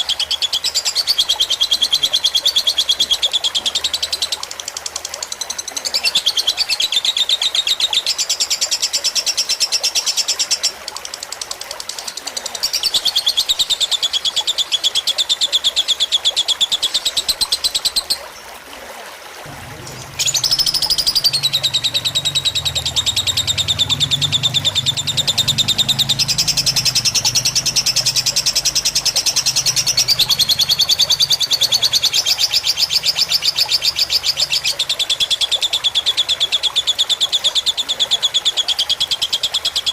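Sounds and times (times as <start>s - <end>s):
trickling water: 0.0s - 39.9s
low hum: 19.5s - 34.4s
bird trilling chatter: 19.5s - 34.9s.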